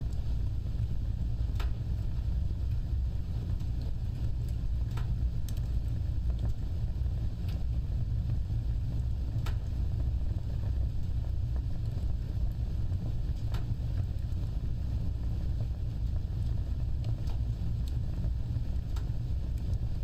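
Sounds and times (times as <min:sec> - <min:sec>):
fire rumbling: 0:00.0 - 0:20.0
wood crackling and popping: 0:00.0 - 0:20.0.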